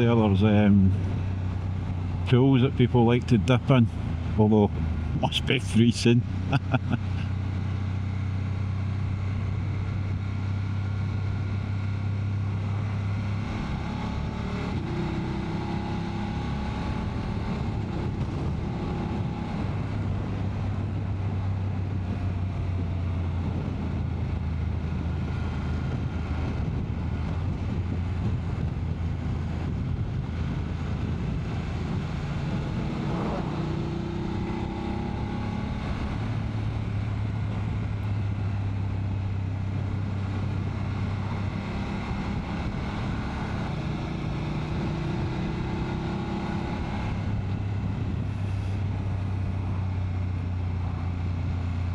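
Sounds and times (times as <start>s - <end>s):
road noise: 0.0s - 51.9s
motorcycle engine running: 6.2s - 51.9s
wind noise: 13.2s - 49.9s.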